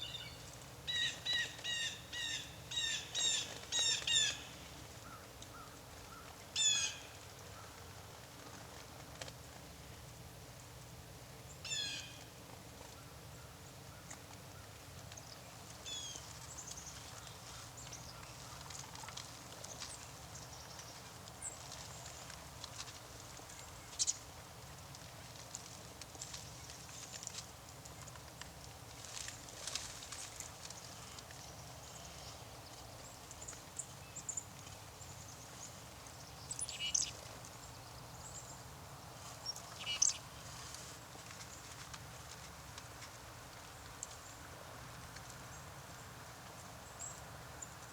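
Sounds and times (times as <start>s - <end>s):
songbirds calling: 0.0s - 7.8s, 30.2s - 38.6s, 39.4s - 40.4s
faint low background noise: 0.0s - 47.9s
high bird chips and ticks: 15.0s - 38.0s.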